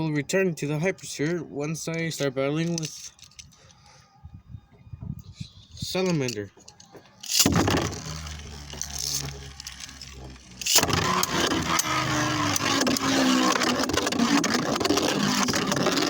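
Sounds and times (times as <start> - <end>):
tops clicking against each other: 6.1 - 16.0
spinning tops whirring scrape: 7.2 - 16.0.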